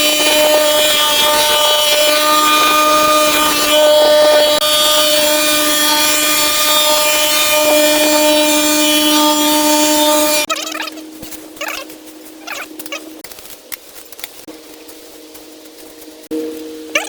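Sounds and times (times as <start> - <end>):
power tool whining: 0.0 - 11.0.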